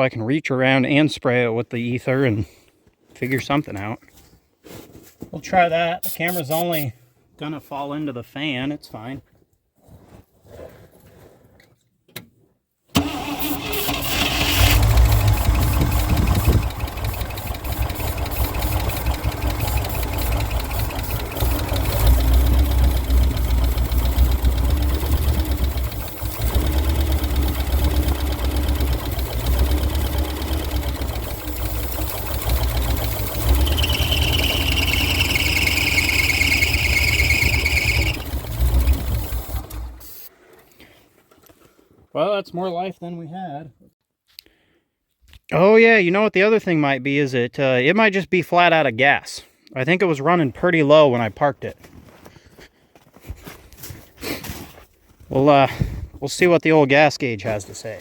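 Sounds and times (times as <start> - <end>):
engine running rough: 13.0 - 40.3.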